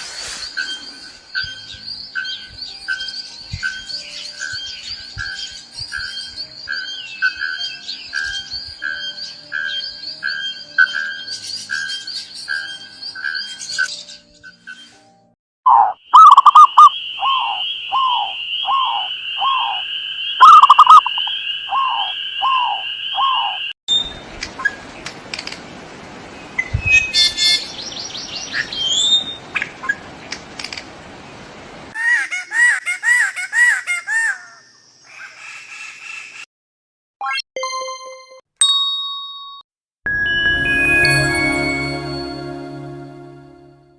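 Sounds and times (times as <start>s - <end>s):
birds chirping: 15.7s - 31.8s
steady high trill: 40.1s - 43.9s.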